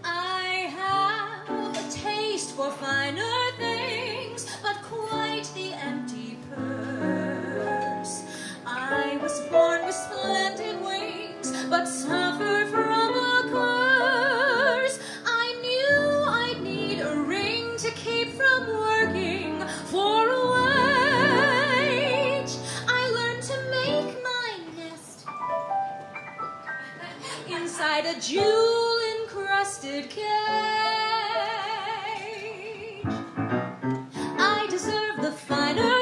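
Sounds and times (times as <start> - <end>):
woman singing: 0.0 - 25.3, 27.3 - 33.2, 34.2 - 36.0
instrumental accompaniment: 15.9 - 27.5, 33.0 - 36.0.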